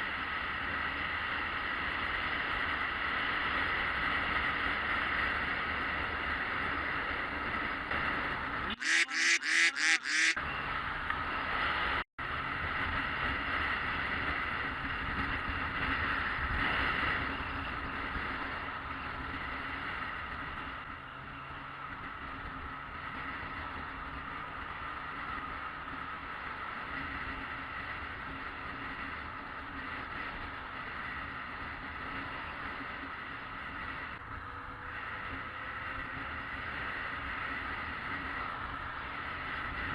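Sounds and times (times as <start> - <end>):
short horn honks: 8.7 - 10.4
wind noise: 11.2 - 21.0.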